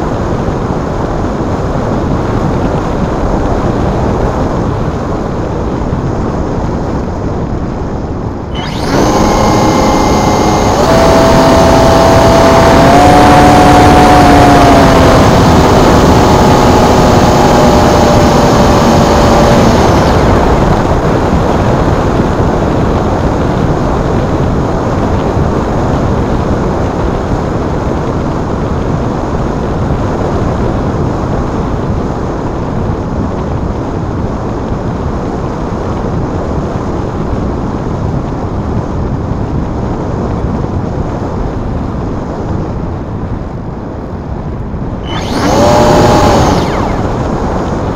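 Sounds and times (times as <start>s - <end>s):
electric motor and propeller whine: 8.2s - 22.8s, 45.0s - 47.9s.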